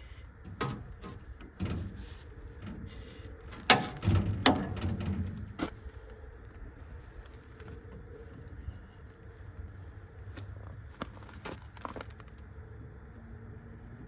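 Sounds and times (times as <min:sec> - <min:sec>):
knocks and clunks on machinery: 0:00.0 - 0:06.2.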